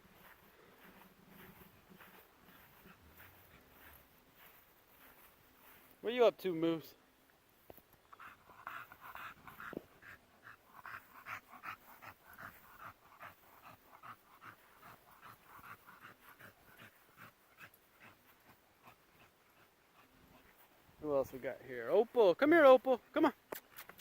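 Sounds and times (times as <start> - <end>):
dog panting faintly: 0.0 - 6.8, 8.1 - 22.0.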